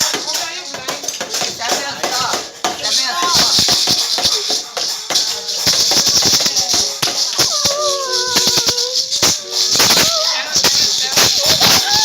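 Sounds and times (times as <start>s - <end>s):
high hissing rattle: 3.2s - 12.0s
pitched vocal noise: 7.3s - 12.0s.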